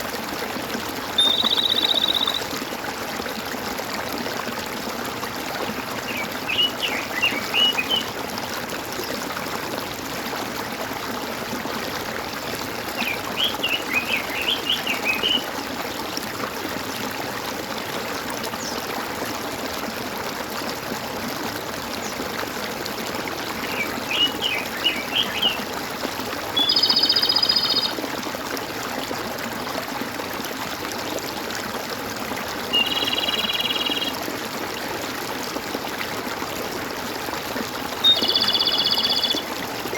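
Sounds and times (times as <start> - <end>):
water trickling and gurgling: 0.0 - 39.9
birds singing: 1.2 - 2.5, 6.1 - 8.1, 13.0 - 15.5, 23.6 - 25.7, 26.6 - 28.0, 32.7 - 34.2, 38.0 - 39.9.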